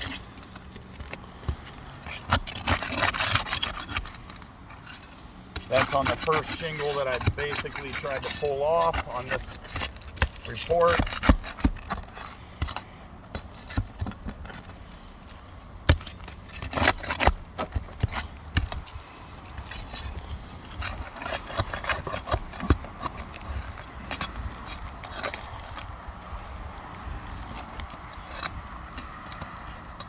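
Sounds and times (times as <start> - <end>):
roof shingles scraping and crackling: 0.0 - 30.0.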